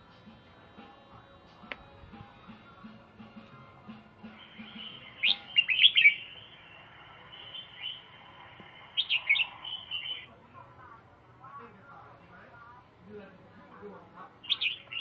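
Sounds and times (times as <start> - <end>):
songbird chirping: 3.3 - 10.4, 14.2 - 15.0.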